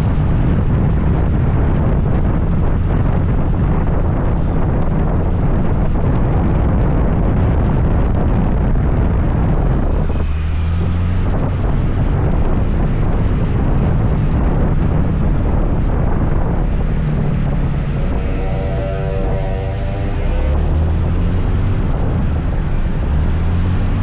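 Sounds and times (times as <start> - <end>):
road noise: 0.0 - 24.0
wind rushing over microphone: 0.0 - 24.0
steady low tone: 15.7 - 23.0.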